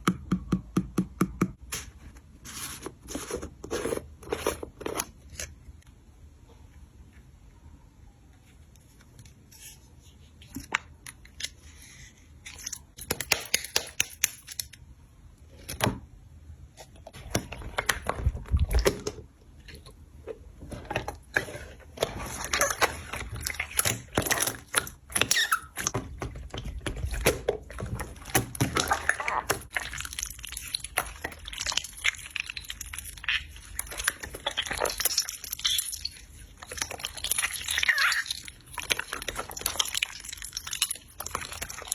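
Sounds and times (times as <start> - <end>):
slime squishing by hand: 16.8 - 41.9.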